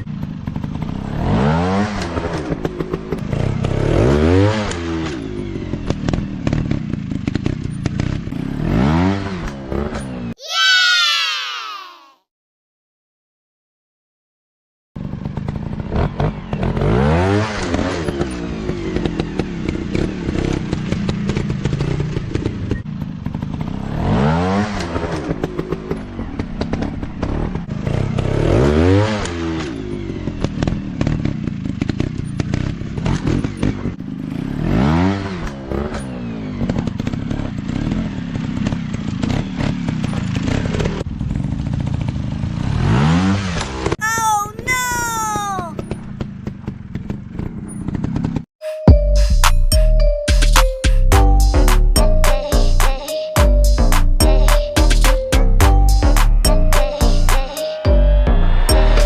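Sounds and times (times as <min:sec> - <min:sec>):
motorcycle engines revving: 0:00.0 - 0:10.4, 0:15.0 - 0:44.0, 0:45.4 - 0:48.5.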